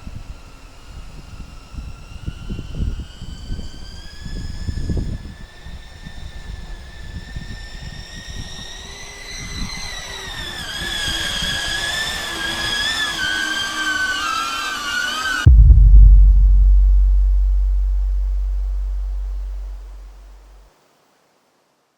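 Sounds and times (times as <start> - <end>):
wind rumbling on microphone: 15.5 - 20.1
loud low hum: 15.5 - 20.6.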